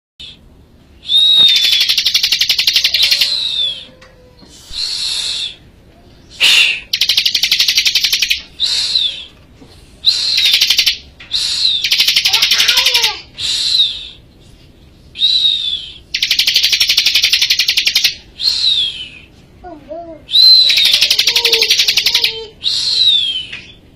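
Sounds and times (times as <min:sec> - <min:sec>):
bird downward-slurred whistle: 0:01.0 - 0:04.0, 0:04.6 - 0:05.6, 0:06.3 - 0:09.3, 0:10.0 - 0:12.2, 0:13.4 - 0:14.2, 0:15.2 - 0:19.3, 0:20.3 - 0:23.8
bird rattling high trill: 0:11.8 - 0:13.1, 0:16.2 - 0:18.2.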